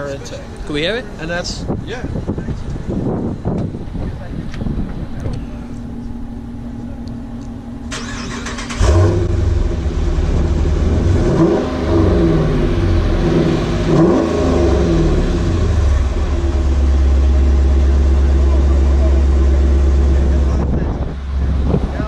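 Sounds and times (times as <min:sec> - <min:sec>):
car engine idling: 0:02.5 - 0:22.0
car engine revving: 0:05.8 - 0:22.0
engine cranking: 0:07.9 - 0:09.3.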